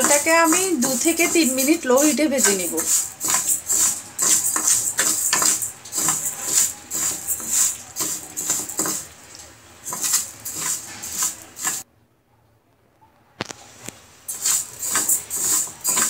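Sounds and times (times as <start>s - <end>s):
spatula scraping lentils in pan: 0.0s - 9.2s, 9.8s - 11.8s, 14.3s - 16.0s.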